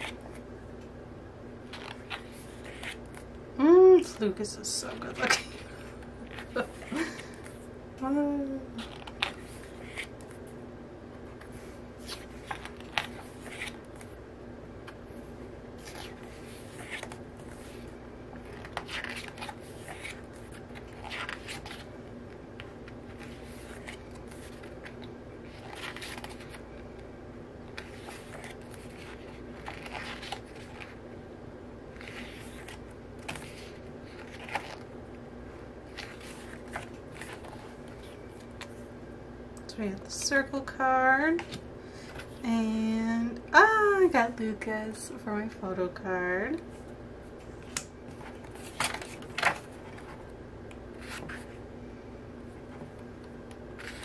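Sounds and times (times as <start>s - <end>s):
faint steady hum: 0.0s - 54.0s
glossy paper pages turning: 1.7s - 3.3s, 8.8s - 10.4s, 11.3s - 14.1s, 15.8s - 21.9s, 22.6s - 27.0s, 27.7s - 31.0s, 31.9s - 34.9s, 35.9s - 38.7s, 53.8s - 54.0s.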